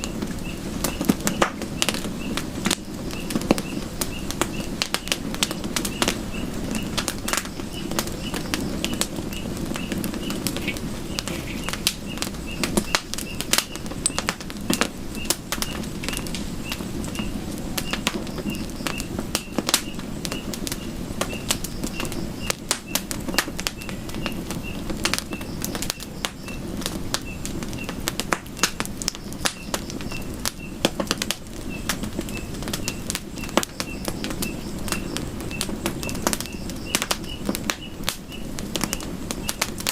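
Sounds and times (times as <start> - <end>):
campfire crackling and popping: 0.0 - 39.9
faint high chirp: 5.8 - 14.3, 15.2 - 23.0, 23.7 - 26.6, 28.6 - 30.8, 31.7 - 39.7.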